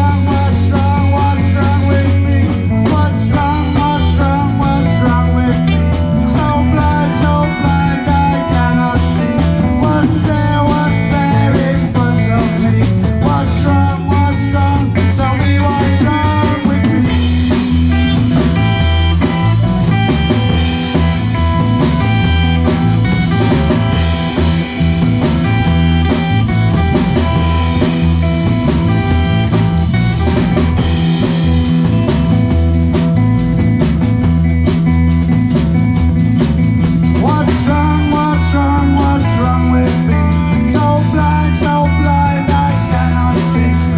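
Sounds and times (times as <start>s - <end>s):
drum kit beat: 0.0s - 43.9s
rock band playing: 0.0s - 43.9s.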